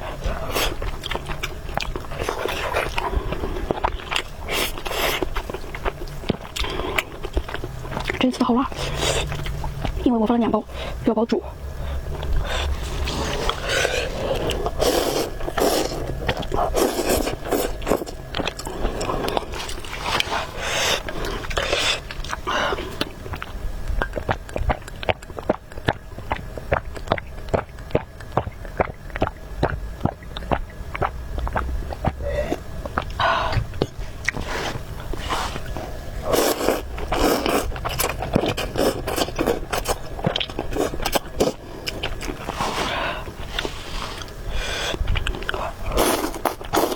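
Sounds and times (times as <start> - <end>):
chewing with mouth smacks: 0.0 - 10.6, 11.8 - 46.9
noodle slurps: 12.4 - 22.4, 34.3 - 46.9.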